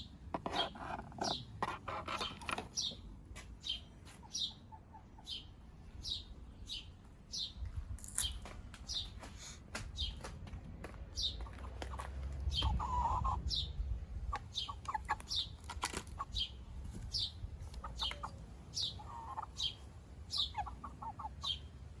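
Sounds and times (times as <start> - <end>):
bird warbling calls: 11.2 - 13.7, 14.4 - 15.6, 16.2 - 21.7
high falling bird chirp: 16.2 - 21.7.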